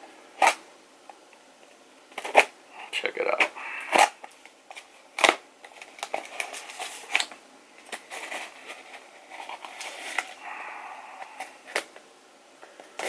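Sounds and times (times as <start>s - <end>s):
scraping cardboard: 8.1s - 10.4s.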